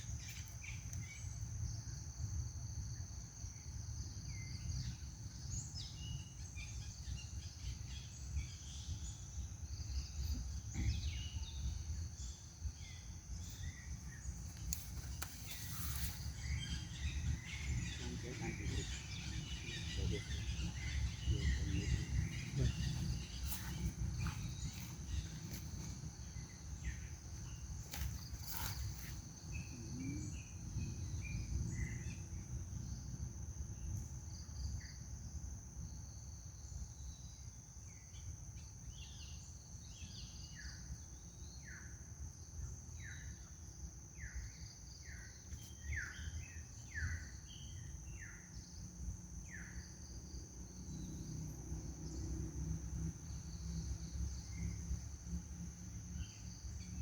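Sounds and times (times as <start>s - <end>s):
low rumble: 14.9s - 27.6s.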